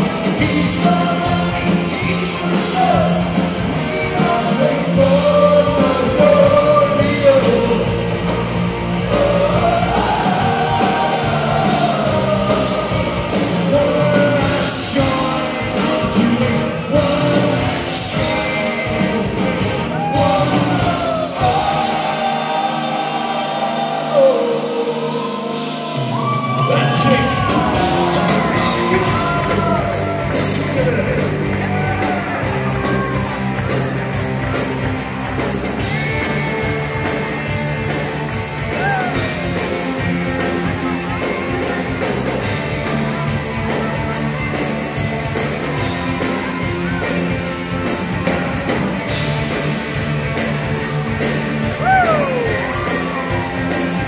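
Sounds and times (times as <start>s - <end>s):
steady drum beat: 0.0s - 22.7s, 26.0s - 54.0s
lead singing: 0.0s - 33.3s
live pop-rock band playing: 0.0s - 54.0s.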